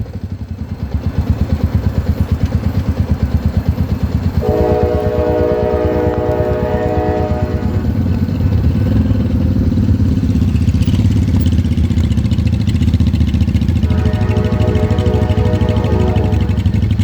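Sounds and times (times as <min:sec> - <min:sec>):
motorcycle engine running: 0:00.0 - 0:17.0
multi-tone horn: 0:04.4 - 0:08.0, 0:13.8 - 0:17.0.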